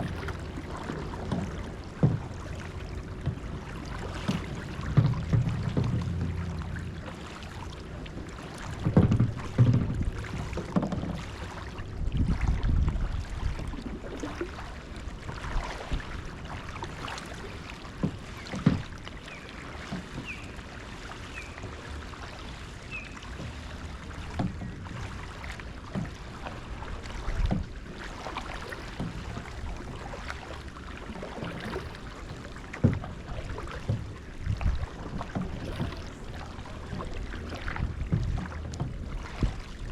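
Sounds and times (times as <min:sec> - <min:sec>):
heavy low rumbles: 0:00.0 - 0:10.3
paddle strokes: 0:00.0 - 0:39.9
water sloshing: 0:00.0 - 0:39.9.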